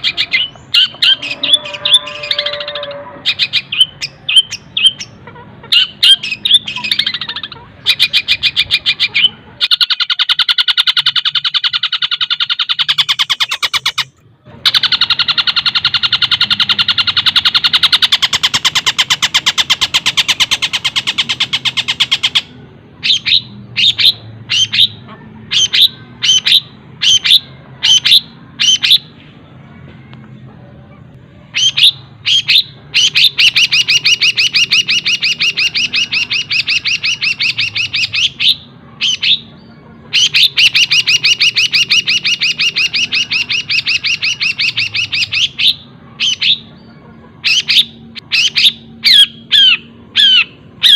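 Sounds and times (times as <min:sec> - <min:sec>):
sharp downward-slurred bird notes: 0:00.0 - 0:05.2, 0:31.4 - 0:50.9
bird singing fast trills: 0:00.0 - 0:29.2, 0:31.5 - 0:50.9.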